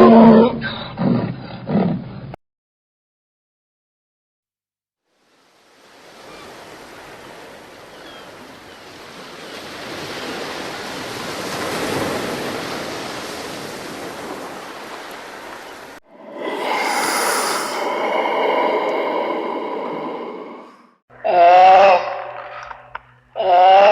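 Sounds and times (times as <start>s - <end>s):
even rushing noise: 16.1s - 21.0s.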